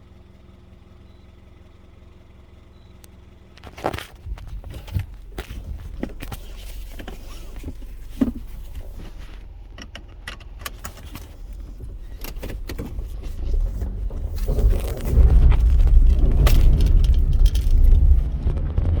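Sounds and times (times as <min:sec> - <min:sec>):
loud low rumble: 0:12.9 - 0:19.0
keys jangling: 0:16.0 - 0:18.2.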